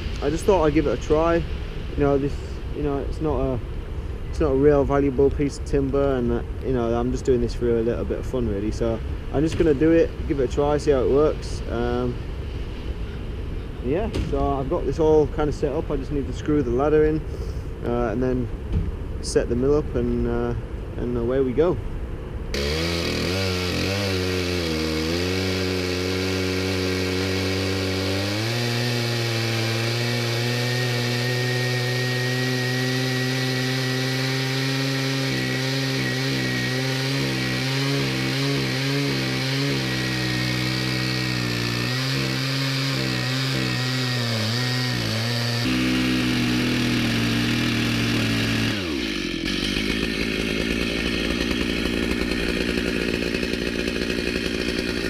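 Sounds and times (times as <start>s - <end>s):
chainsaw cutting through log: 0.0s - 2.2s, 9.4s - 12.1s, 22.5s - 55.0s.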